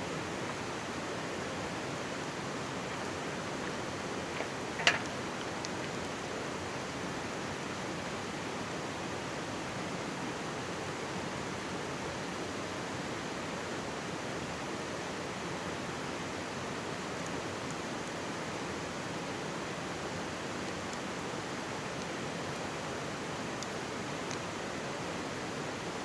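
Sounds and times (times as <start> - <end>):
mountain stream babbling: 0.1 - 11.6
faint campfire crackles: 0.1 - 26.0.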